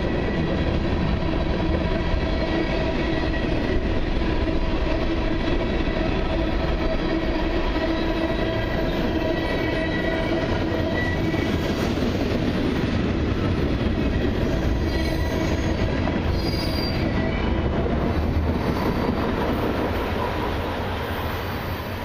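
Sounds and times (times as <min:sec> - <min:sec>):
high wheel squeal: 0:14.8 - 0:17.4.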